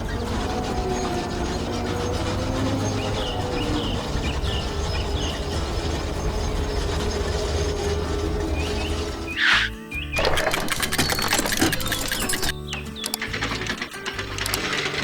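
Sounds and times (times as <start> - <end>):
low mechanical hum: 0.0 - 9.4
machinery rattling and clatter: 0.0 - 9.5, 10.2 - 15.0.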